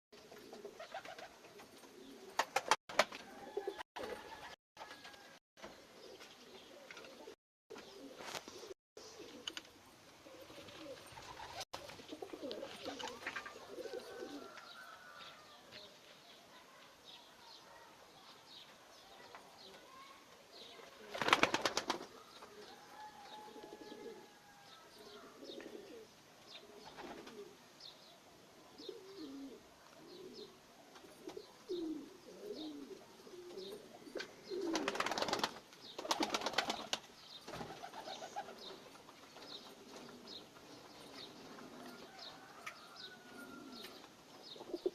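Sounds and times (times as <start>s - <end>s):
pigeons cooing: 0.2s - 2.6s, 3.2s - 4.6s, 5.8s - 15.2s, 21.0s - 27.6s, 28.8s - 36.9s, 37.5s - 38.8s, 39.5s - 44.9s
wings flapping: 0.5s - 1.6s, 2.2s - 5.3s, 10.5s - 13.6s, 20.9s - 22.2s, 26.8s - 27.4s, 34.6s - 40.2s.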